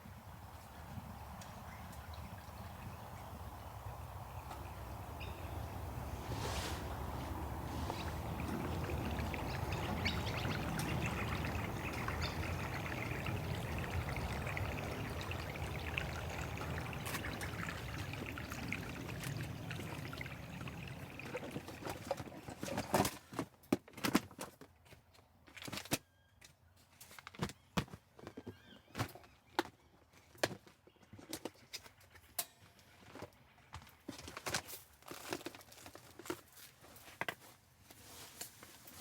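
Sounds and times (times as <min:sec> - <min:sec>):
liquid pouring: 0:06.8 - 0:23.0.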